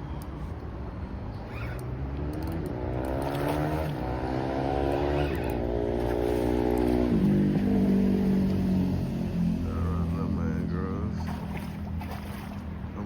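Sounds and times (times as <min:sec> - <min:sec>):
motor engine running: 0:03.0 - 0:13.0.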